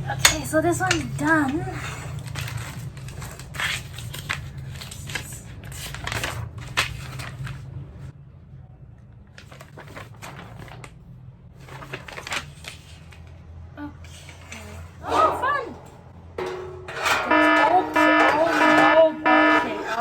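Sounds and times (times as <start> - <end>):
steady low hum: 13.6 - 20.0
metal cart parts clinking: 14.1 - 20.0.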